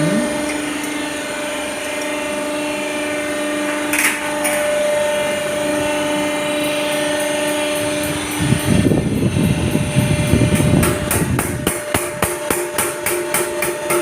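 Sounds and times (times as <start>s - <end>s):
power tool motor humming: 0.0s - 12.6s.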